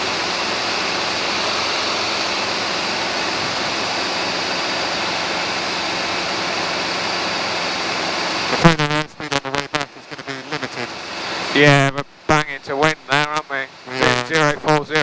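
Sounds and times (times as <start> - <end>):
helicopter cabin rushing noise: 0.0 - 15.0
faint low hum: 8.5 - 15.0.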